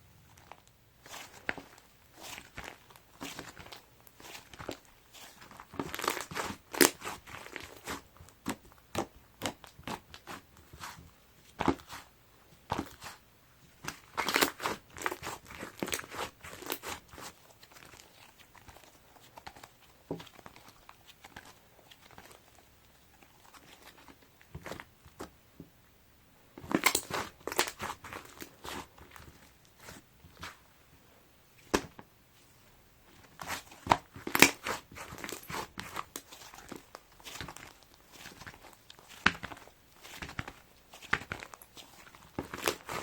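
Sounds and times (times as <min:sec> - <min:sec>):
slime squishing and popping: 0:01.0 - 0:10.9, 0:26.7 - 0:30.6, 0:33.4 - 0:43.0.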